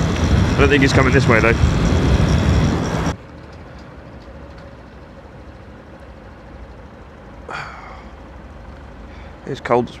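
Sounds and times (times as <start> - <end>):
motorcycle engine idling: 4.0 - 10.0.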